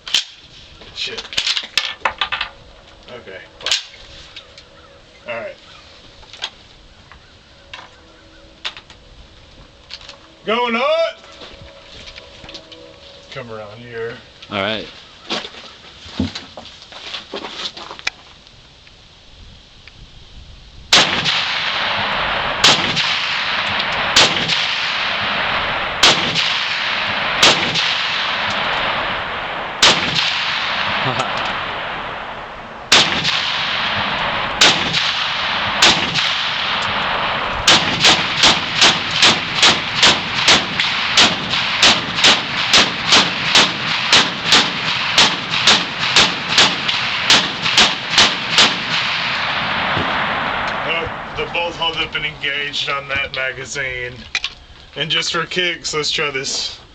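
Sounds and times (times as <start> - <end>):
steady rushing noise: 19.1 - 54.3
rifle shots: 20.9 - 52.3.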